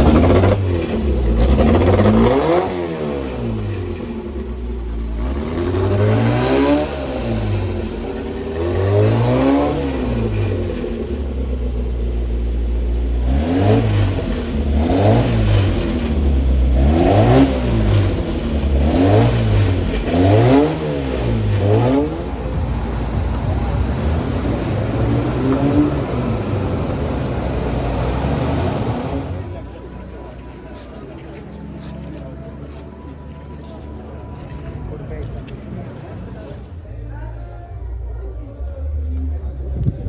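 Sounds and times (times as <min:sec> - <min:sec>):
car engine revving: 0:00.0 - 0:29.7.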